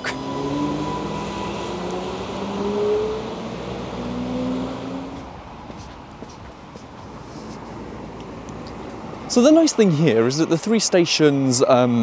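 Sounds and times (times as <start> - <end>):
train pulling away: 0.0 - 5.2
rising traction motor whine: 0.0 - 5.3.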